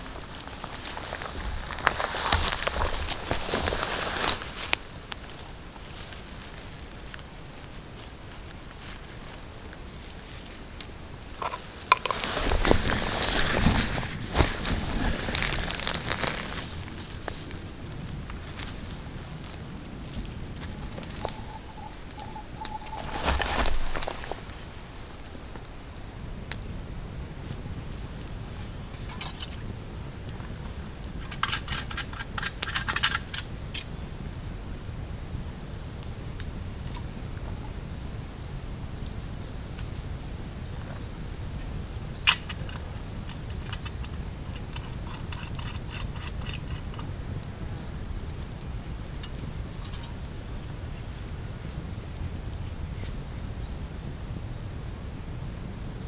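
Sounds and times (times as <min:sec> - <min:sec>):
clicks and crackles: 0:00.0 - 0:07.8, 0:08.4 - 0:25.7, 0:28.2 - 0:34.0, 0:42.0 - 0:53.1
low outdoor rumble: 0:00.0 - 0:56.0
insect chirping: 0:10.2 - 0:56.0.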